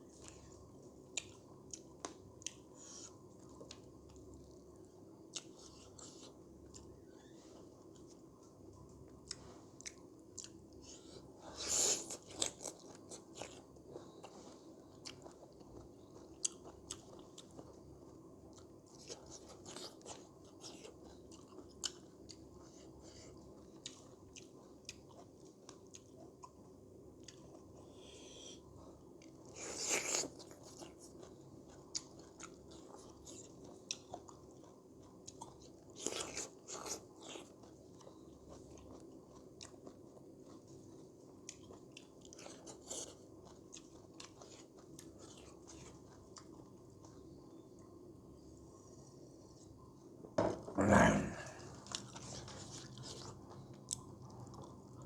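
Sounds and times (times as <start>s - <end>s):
person chewing: 5.3s - 6.9s, 9.1s - 17.7s, 18.5s - 26.6s, 27.2s - 47.4s, 50.8s - 55.0s.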